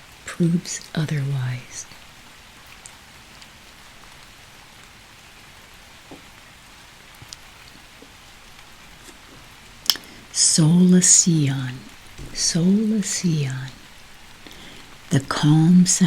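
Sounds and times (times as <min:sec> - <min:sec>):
gentle rain patter: 0:00.0 - 0:16.0
single raindrop ticks: 0:02.6 - 0:04.3, 0:07.1 - 0:10.2.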